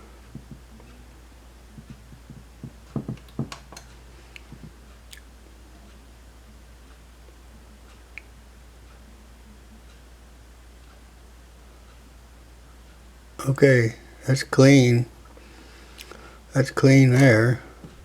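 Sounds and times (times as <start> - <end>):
clicks and light knocks: 1.8 - 5.2.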